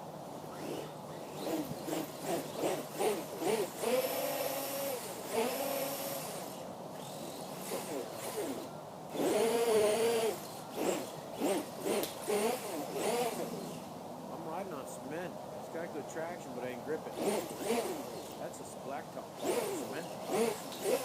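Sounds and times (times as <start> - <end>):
rc truck motor whining: 0.5 - 13.9, 17.0 - 18.4, 19.4 - 21.0.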